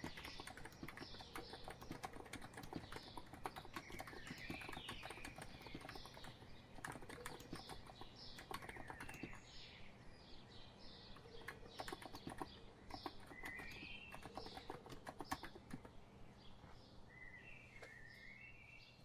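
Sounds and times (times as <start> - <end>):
keyboard keystrokes: 0.0 - 9.4, 11.2 - 16.0
birds chirping: 0.0 - 19.0.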